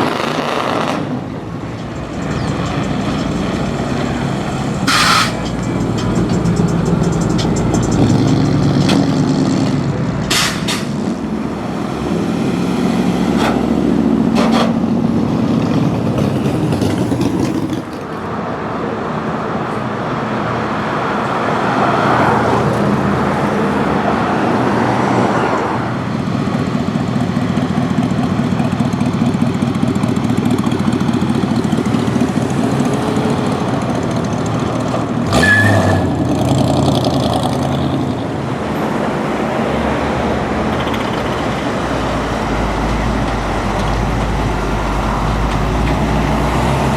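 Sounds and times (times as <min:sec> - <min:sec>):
car engines passing slowly: 0:00.0 - 0:46.9
short sharp sounds: 0:04.8 - 0:05.6.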